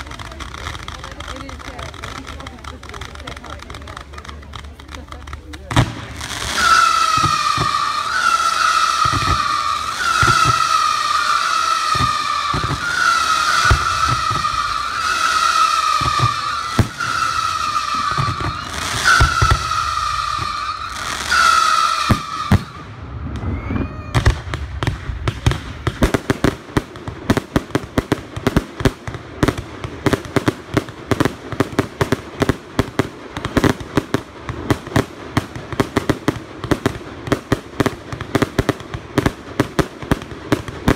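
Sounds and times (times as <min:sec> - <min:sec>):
crackling fireworks: 0:00.0 - 0:40.9
whistling fireworks: 0:00.0 - 0:40.9
fireworks shells bursting: 0:06.0 - 0:22.8.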